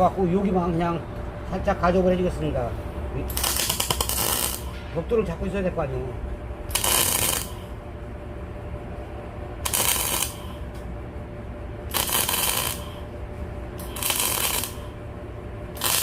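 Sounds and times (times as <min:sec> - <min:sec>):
welder low hum: 0:00.0 - 0:16.0
welding arc crackling: 0:03.2 - 0:04.8, 0:06.7 - 0:07.7, 0:09.6 - 0:10.6, 0:11.8 - 0:13.1, 0:13.7 - 0:15.0, 0:15.7 - 0:16.0.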